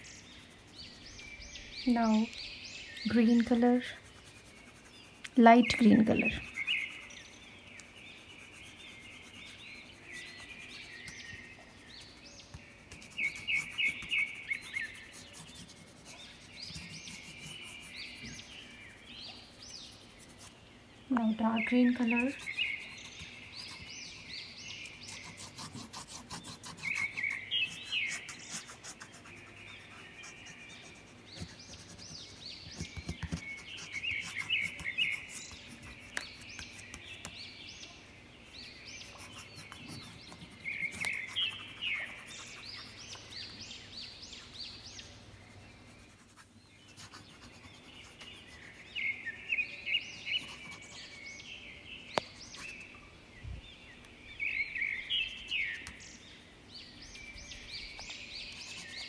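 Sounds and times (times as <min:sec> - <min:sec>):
songbird chirping: 0:00.0 - 0:59.0
crayon rubbing on paper: 0:03.1 - 0:07.4, 0:08.2 - 0:12.2, 0:12.9 - 0:18.6, 0:21.8 - 0:37.3, 0:38.6 - 0:49.0, 0:50.2 - 0:51.2, 0:58.5 - 0:59.0.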